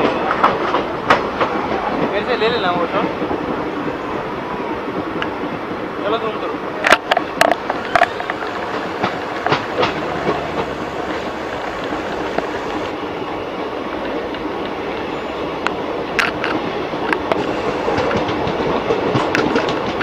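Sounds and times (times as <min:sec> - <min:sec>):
train running on rails: 0:00.0 - 0:20.0
wheel clicks over rail joints: 0:06.9 - 0:12.9.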